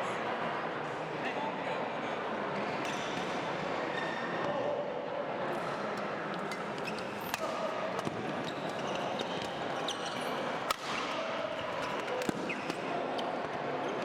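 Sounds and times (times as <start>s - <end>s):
shoes squeaking on court: 6.5s - 10.5s
racket striking shuttlecock: 10.7s - 11.2s.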